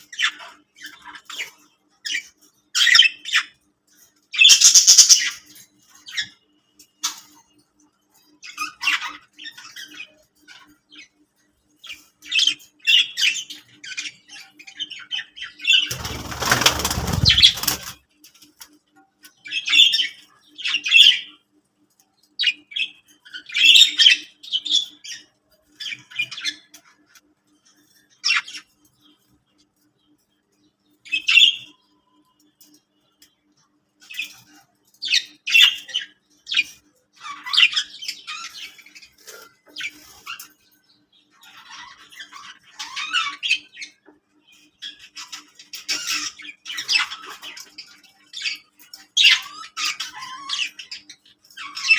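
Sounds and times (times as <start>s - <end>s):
budgerigars chirping and chattering: 0.0s - 7.5s, 8.1s - 18.0s, 19.2s - 21.4s, 22.4s - 30.3s, 30.9s - 32.0s, 33.5s - 51.9s
wing flapping: 15.9s - 18.0s.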